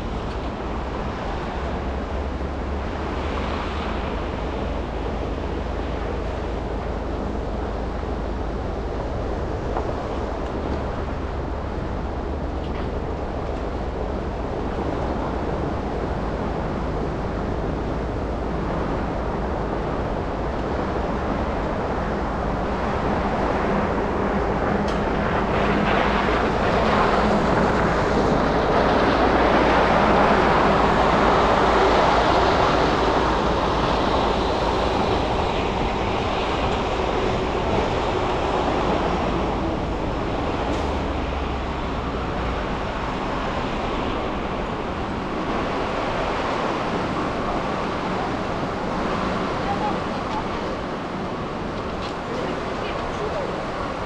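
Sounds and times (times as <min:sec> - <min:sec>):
road and tyre noise: 0:00.0 - 0:54.0.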